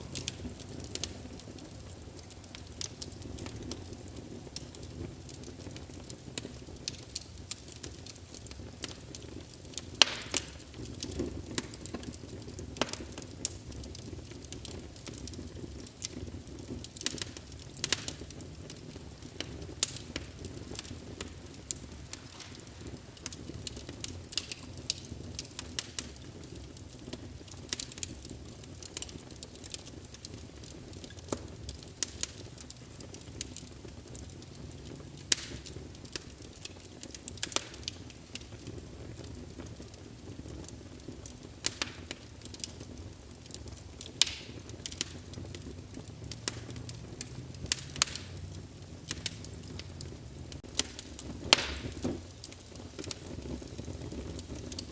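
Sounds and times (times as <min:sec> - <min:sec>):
burning logs crackling and popping: 0:00.0 - 0:54.9
low rush of flame: 0:00.0 - 0:54.9.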